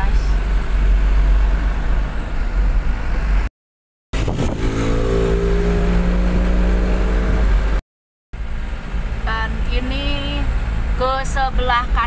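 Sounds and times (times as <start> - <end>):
road rumble: 0.0 - 3.5, 4.2 - 7.8, 8.4 - 12.0
vehicle engine droning: 4.2 - 7.8.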